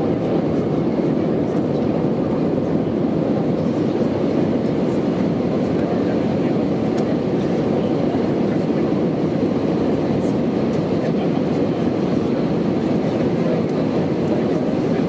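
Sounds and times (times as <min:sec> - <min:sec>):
jet cabin engine and airflow noise: 0:00.0 - 0:15.0.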